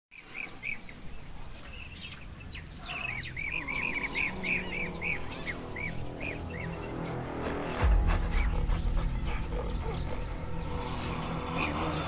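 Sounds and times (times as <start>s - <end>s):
bird chirping rapidly: 3.0s - 12.0s.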